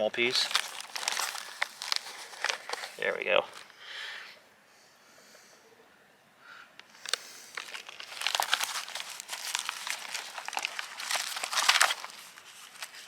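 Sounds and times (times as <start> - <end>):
paper rustling and crinkling: 0.0 - 3.7, 7.0 - 13.0.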